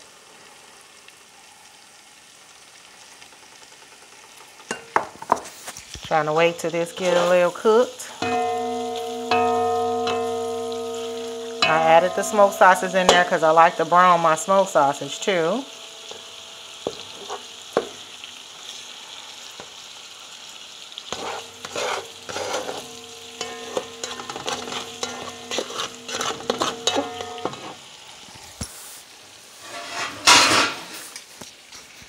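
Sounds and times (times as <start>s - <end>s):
sausage sizzling in a skillet: 0.0s - 32.0s
spatula stirring and scraping: 7.0s - 13.6s, 15.1s - 18.0s, 21.0s - 27.8s.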